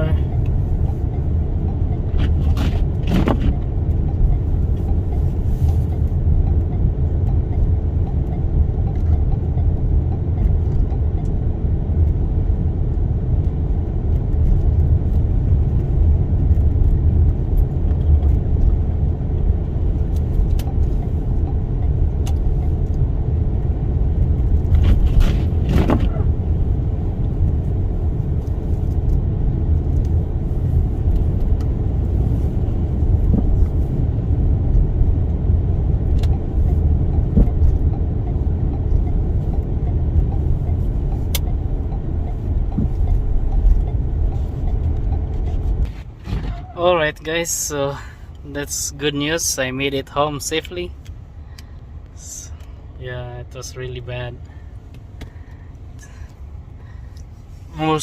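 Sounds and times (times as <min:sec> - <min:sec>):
road and engine rumble in car: 0:00.0 - 0:58.0.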